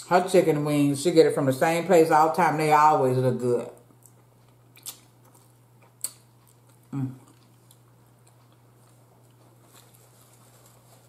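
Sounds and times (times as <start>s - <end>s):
chewing and mouth sounds: 3.9s - 10.8s.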